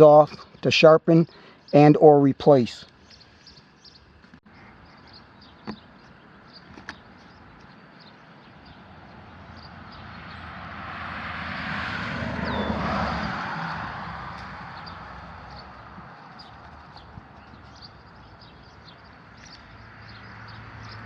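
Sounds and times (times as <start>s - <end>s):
vehicle passing by: 8.0s - 21.0s.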